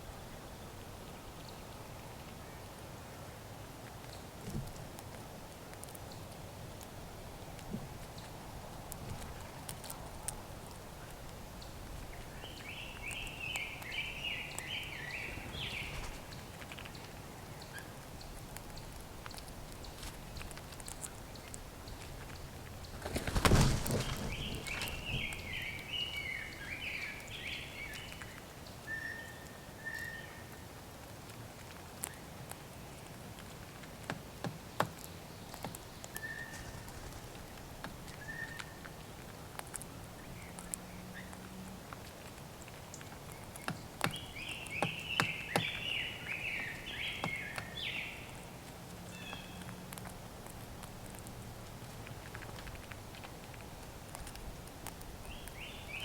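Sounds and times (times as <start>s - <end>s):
bird clicks: 8.9s - 23.4s, 24.6s - 28.4s, 31.3s - 56.0s.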